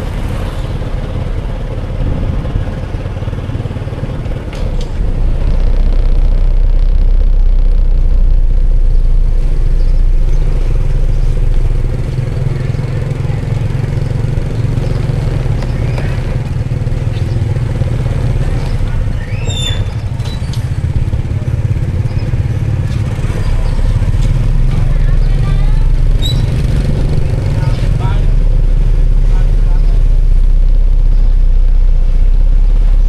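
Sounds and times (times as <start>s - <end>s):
motorbike engine rumbling: 0.0s - 33.0s.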